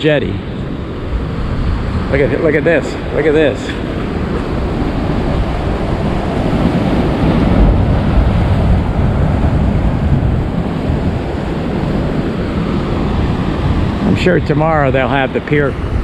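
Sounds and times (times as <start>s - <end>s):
ocean waves crashing on rocks: 0.0s - 16.0s
wind buffeting microphone: 0.0s - 16.0s.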